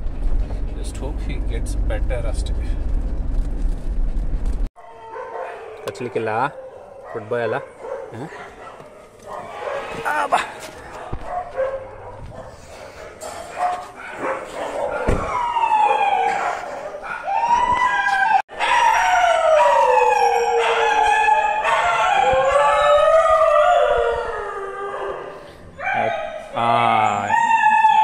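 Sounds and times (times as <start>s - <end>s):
dog howling: 4.8s - 12.5s, 14.0s - 28.0s.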